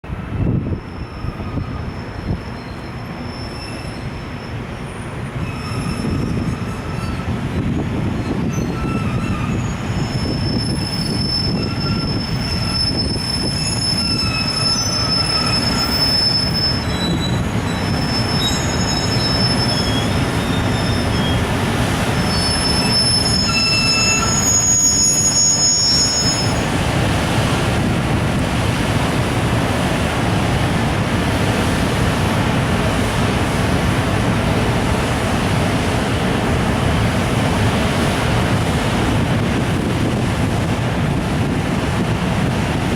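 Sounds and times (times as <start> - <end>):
train rumbling: 0.0 - 42.9
train wheels squealing: 0.7 - 21.6, 22.2 - 26.7.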